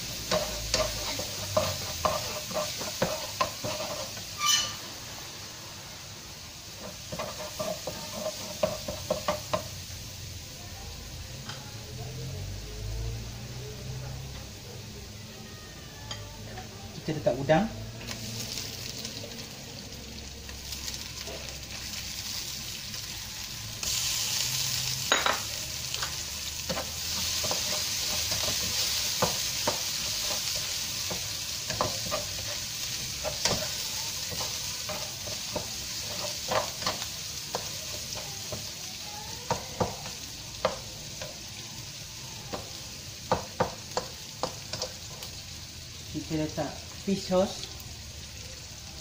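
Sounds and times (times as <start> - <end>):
spatula scraping a wok: 0.0 - 5.2, 6.8 - 9.6, 25.9 - 38.6
food sizzling in hot oil: 0.0 - 49.0.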